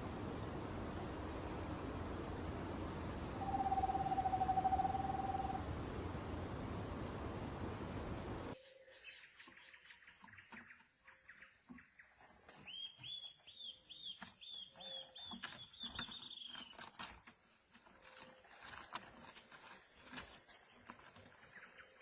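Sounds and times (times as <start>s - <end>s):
loud hiss: 0.0s - 3.6s
songbirds chirping: 0.0s - 22.0s
repeated whistled bird notes: 3.4s - 5.6s.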